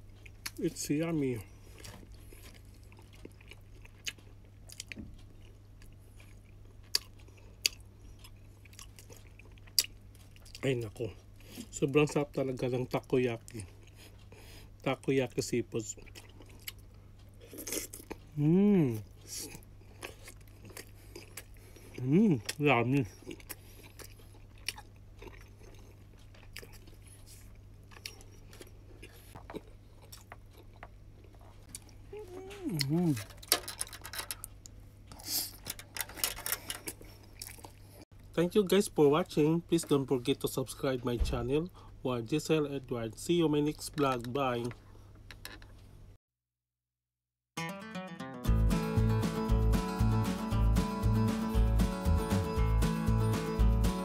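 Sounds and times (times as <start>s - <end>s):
person chewing: 0.0s - 0.6s, 1.5s - 11.7s, 13.4s - 14.8s, 15.9s - 33.5s, 34.1s - 38.0s
faint low hum: 0.0s - 46.2s.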